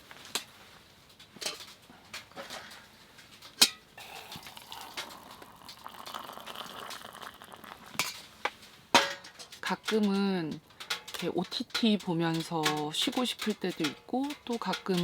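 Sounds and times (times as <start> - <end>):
hot water pouring into cup: 4.0 - 8.3.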